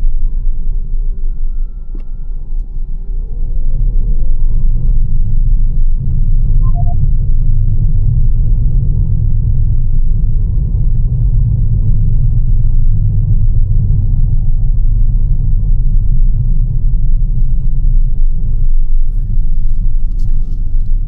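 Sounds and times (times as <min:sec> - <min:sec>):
road rumble inside car cabin: 0:07.8 - 0:21.0.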